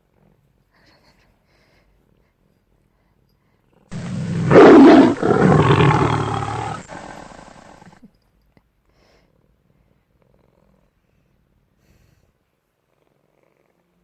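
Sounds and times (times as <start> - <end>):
big cat roaring: 4.0 - 7.9.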